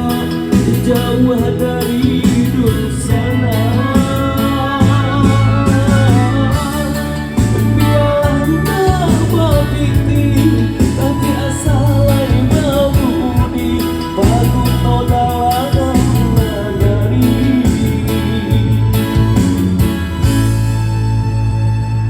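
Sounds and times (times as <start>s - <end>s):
live band music: 0.0s - 22.0s.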